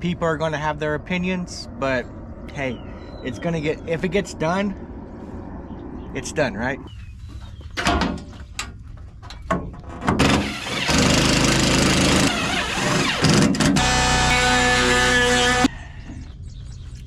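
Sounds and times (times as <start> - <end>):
steady whine: 0.0 - 7.0, 12.1 - 15.8
power tool running: 10.2 - 15.7.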